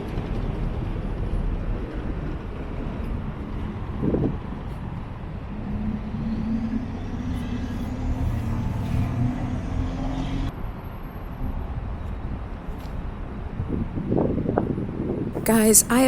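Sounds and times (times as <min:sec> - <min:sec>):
wind rumbling on microphone: 0:13.0 - 0:15.4.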